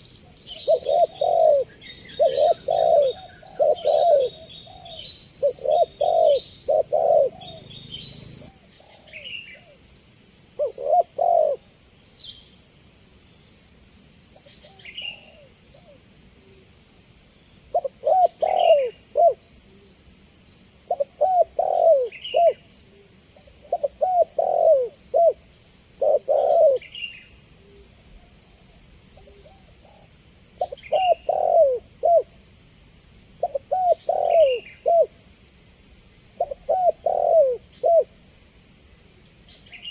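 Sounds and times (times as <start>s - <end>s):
dove cooing: 0.0s - 9.8s, 10.6s - 11.7s, 17.7s - 19.4s, 20.9s - 22.7s, 23.4s - 25.4s, 26.0s - 27.0s, 29.2s - 32.4s, 33.4s - 35.2s, 36.4s - 38.2s
small bird chirping: 0.0s - 9.8s, 29.2s - 32.3s, 33.4s - 35.1s
steady high-pitched hiss: 0.0s - 39.9s.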